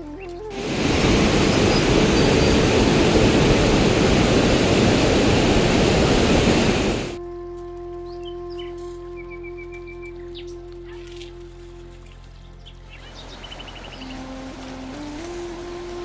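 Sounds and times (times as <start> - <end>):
rushing water: 0.5 - 7.2, 13.1 - 16.0.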